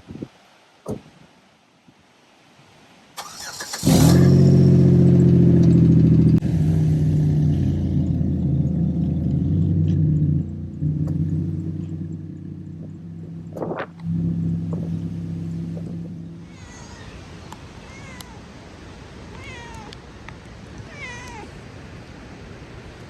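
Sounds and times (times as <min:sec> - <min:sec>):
car engine starting and idling: 0:03.2 - 0:16.6.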